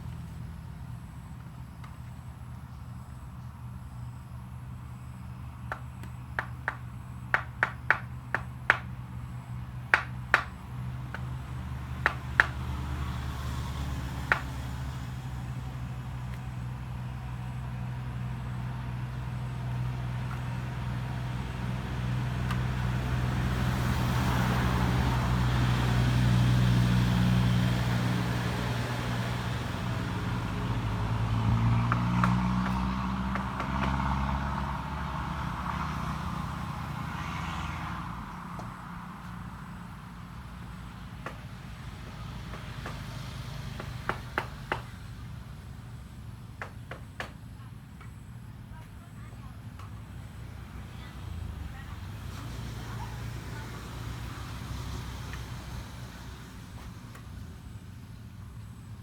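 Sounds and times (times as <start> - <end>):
sharp knocks: 5.7 - 8.9, 9.9 - 11.3, 12.0 - 12.8, 14.2 - 14.7.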